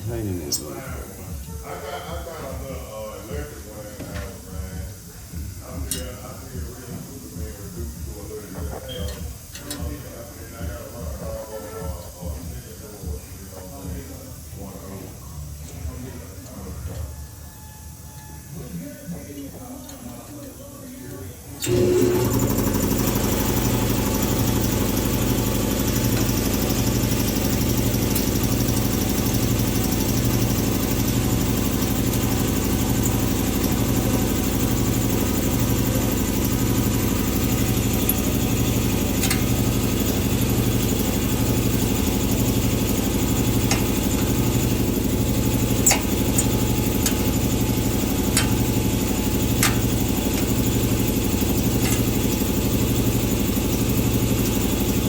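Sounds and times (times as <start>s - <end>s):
machine throbbing: 21.6s - 55.0s.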